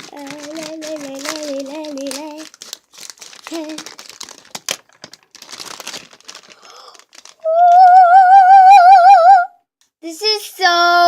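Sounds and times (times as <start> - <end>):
plastic packaging crinkling: 0.0 - 8.0
child singing high note: 7.5 - 11.0.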